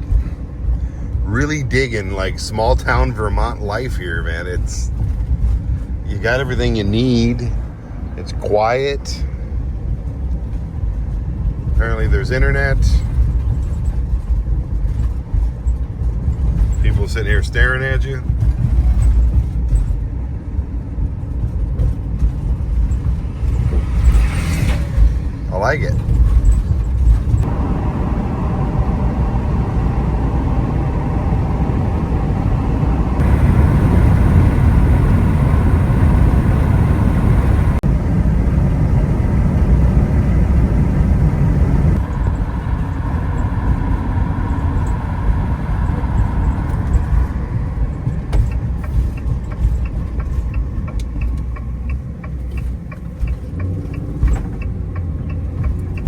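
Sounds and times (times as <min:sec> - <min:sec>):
van engine and tyre rumble: 0:00.0 - 0:56.0
faint regular ticking: 0:48.5 - 0:56.0.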